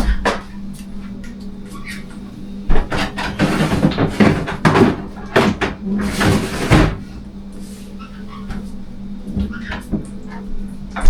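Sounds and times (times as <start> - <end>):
steady low hum: 0.0 - 11.0
knocks and clatters of handling: 2.9 - 7.0.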